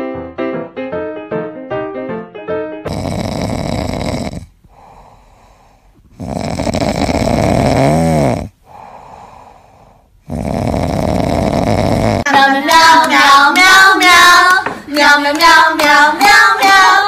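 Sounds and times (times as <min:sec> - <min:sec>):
piano music: 0:00.0 - 0:02.9
puppy snoring: 0:02.9 - 0:12.3
quiet breaths: 0:03.4 - 0:12.3.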